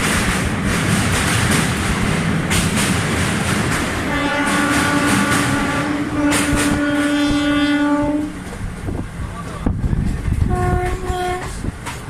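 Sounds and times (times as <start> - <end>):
train wheels clickety-clack: 0.0 - 12.0
train horn blast: 4.1 - 8.5, 10.5 - 11.6.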